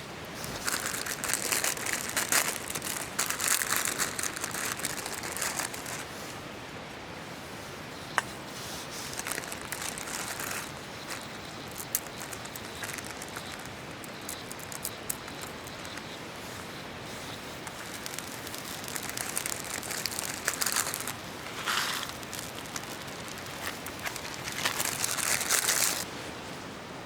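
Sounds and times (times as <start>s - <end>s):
plastic packet crinkling: 0.4s - 6.1s, 9.0s - 16.0s, 17.6s - 26.1s.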